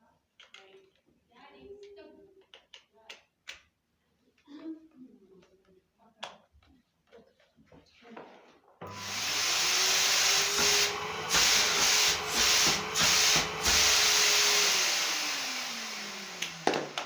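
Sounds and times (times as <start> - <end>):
vacuum cleaner running: 8.8 - 17.0.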